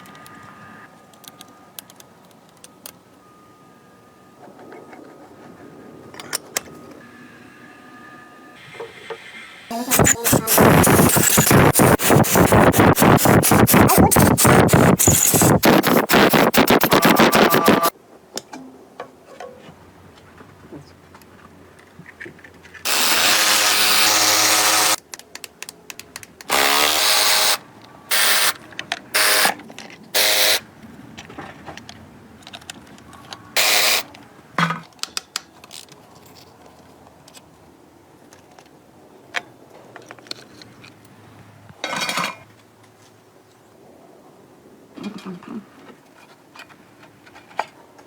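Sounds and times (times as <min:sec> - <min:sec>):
power tool running in bursts: 0:09.7 - 0:17.9, 0:22.9 - 0:25.0, 0:26.5 - 0:28.6, 0:30.2 - 0:30.6, 0:33.6 - 0:34.0
small clicks and taps: 0:25.0 - 0:26.5.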